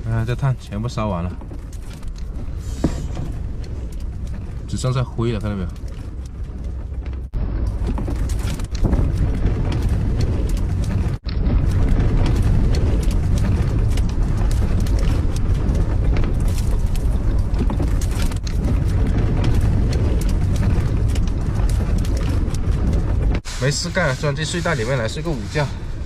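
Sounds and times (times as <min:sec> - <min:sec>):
small knocks and rattles: 0:00.0 - 0:23.4
gusty wind on microphone: 0:05.8 - 0:26.0.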